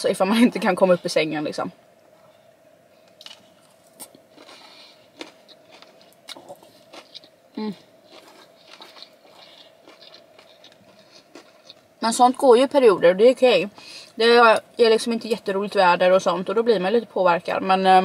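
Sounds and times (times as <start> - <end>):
faint steady hum: 0.0 - 18.0
chewing with mouth clicks: 3.1 - 11.9.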